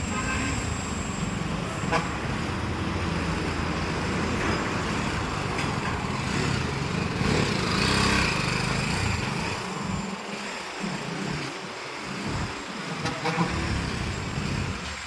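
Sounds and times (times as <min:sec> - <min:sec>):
motorcycle engine running: 0:04.8 - 0:15.0.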